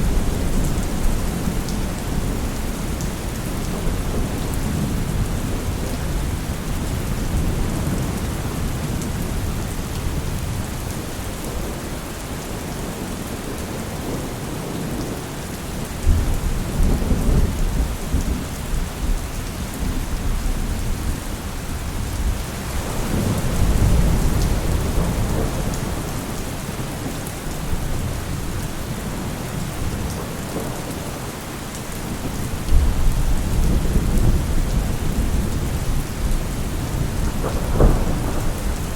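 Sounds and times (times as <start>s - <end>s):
heavy rain: 0.0s - 38.9s
rolling thunder: 21.8s - 30.7s, 32.0s - 38.9s.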